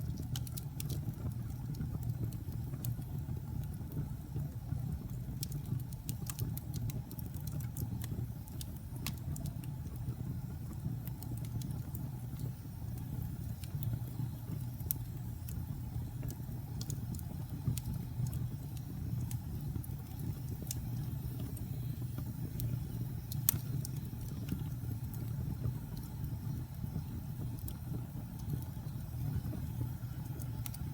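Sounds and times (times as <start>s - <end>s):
fire crackles and pops: 0.0s - 30.9s
low rumble of flames: 0.0s - 30.9s.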